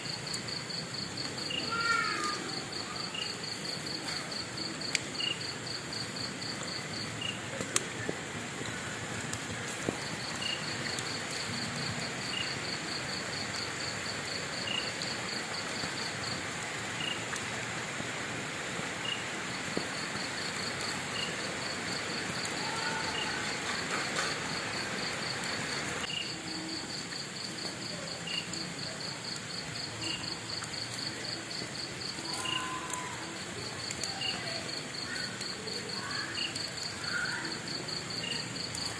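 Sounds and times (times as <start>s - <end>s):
cricket chirping: 0.0s - 7.6s, 9.8s - 38.9s
crickets trilling: 0.0s - 38.9s
wood fire hissing and crackling: 0.0s - 38.9s.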